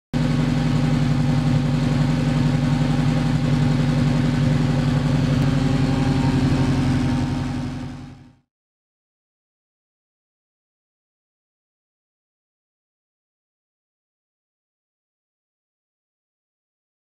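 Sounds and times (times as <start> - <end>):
car engine idling: 0.2 - 8.4.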